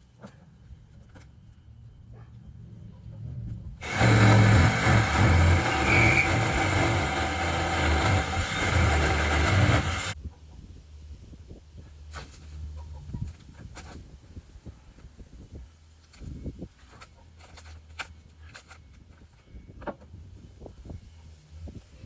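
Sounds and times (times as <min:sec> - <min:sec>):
power saw cutting plywood: 0:03.8 - 0:10.2.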